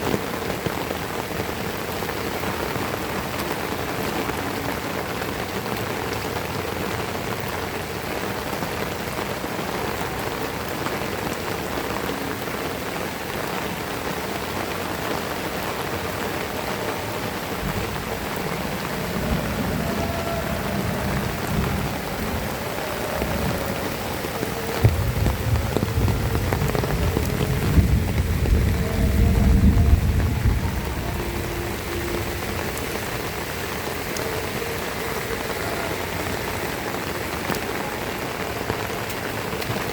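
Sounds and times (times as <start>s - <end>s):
heavy rain falling: 0.0s - 39.9s
low rumble: 24.8s - 32.8s.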